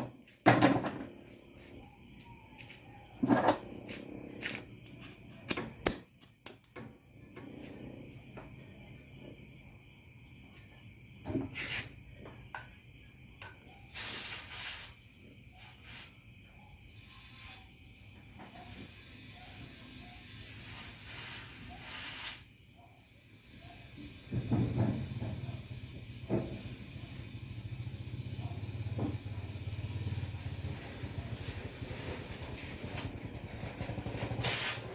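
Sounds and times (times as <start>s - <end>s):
crickets chirping: 0.0s - 34.9s
air hissing: 13.8s - 15.1s, 18.6s - 22.5s, 26.4s - 27.3s, 34.4s - 34.9s.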